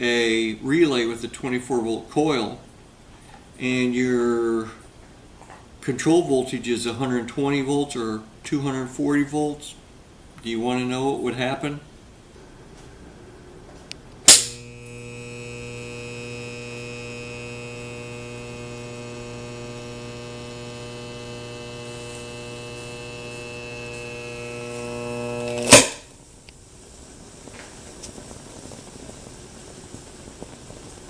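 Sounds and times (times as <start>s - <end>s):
sharp electrical snap: 13.9s - 26.6s
loud electrical buzz: 14.2s - 26.3s.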